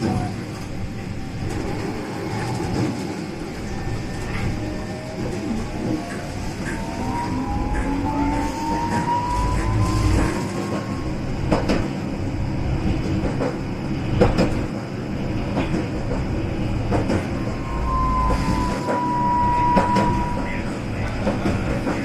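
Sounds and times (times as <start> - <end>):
tram wheels clacking over rail joints: 0.0 - 22.0
tram wheel squeal: 1.5 - 12.5, 16.6 - 22.0.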